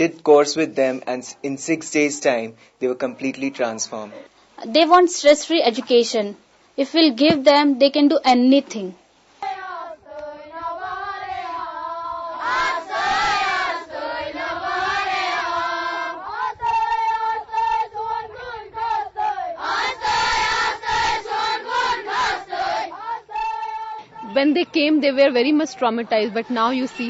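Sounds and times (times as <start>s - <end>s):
children singing in unison: 9.4s - 24.3s.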